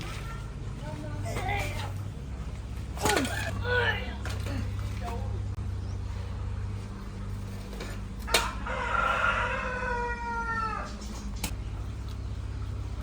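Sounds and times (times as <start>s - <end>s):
steady low hum: 0.0s - 13.0s
rooster crowing: 8.2s - 11.0s.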